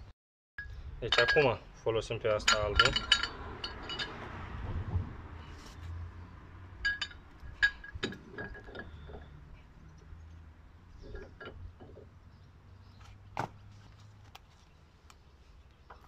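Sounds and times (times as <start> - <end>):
metal tool parts clinking: 1.1 - 1.5, 2.4 - 4.2, 6.8 - 9.3, 11.0 - 12.0.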